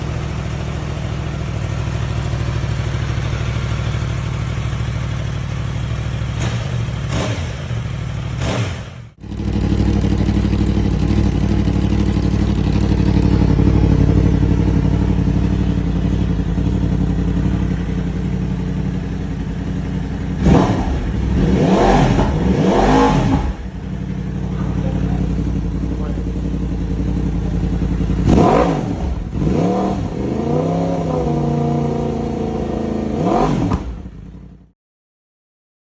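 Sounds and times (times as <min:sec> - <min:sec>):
motorcycle engine idling and revving: 0:00.0 - 0:34.8.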